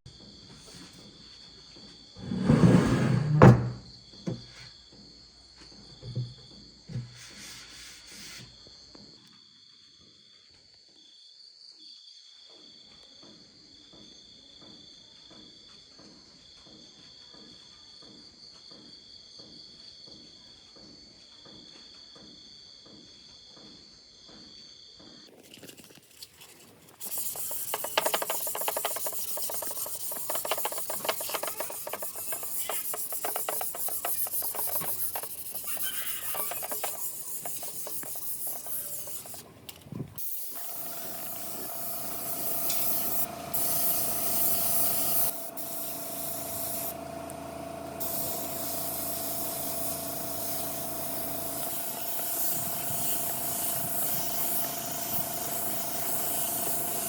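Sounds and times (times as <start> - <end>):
abrasive rubbing on wood: 2.2 - 3.8, 27.0 - 39.5.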